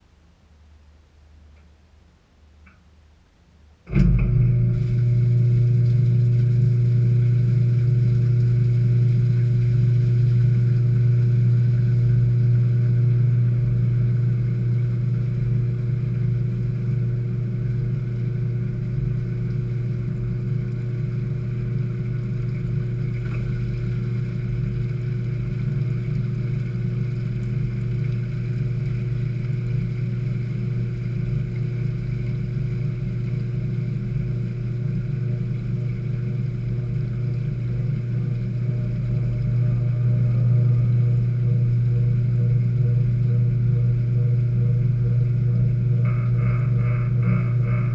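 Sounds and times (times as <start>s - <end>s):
washing machine spinning: 3.7s - 47.9s.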